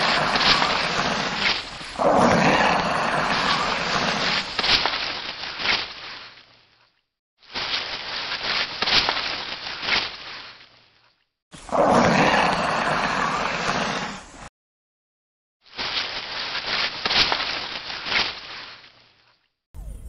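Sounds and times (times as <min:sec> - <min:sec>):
lizard hissing: 0:00.0 - 0:04.6, 0:11.6 - 0:14.5.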